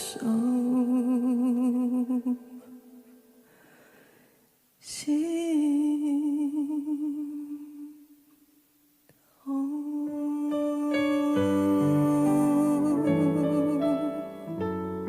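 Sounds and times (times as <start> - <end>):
pop ballad: 0.0 - 2.9, 9.4 - 15.0.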